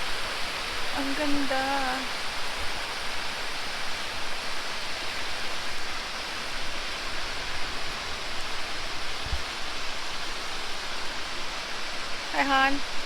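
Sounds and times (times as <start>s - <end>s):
falling water rushing: 0.0s - 13.0s.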